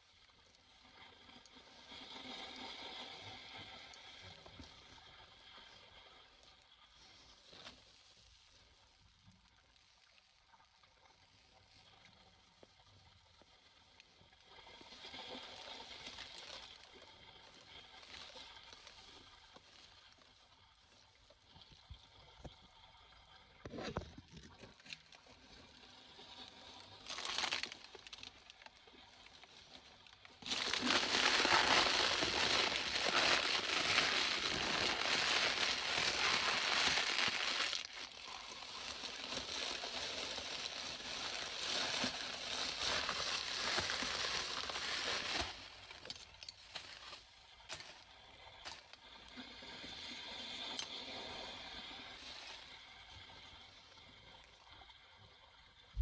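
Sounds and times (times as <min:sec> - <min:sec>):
litter crinkling and rustling: 0:27.0 - 0:48.0.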